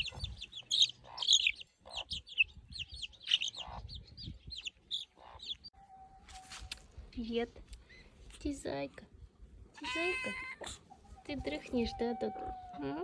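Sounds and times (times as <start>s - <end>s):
baby chicks peeping: 0.0s - 5.7s.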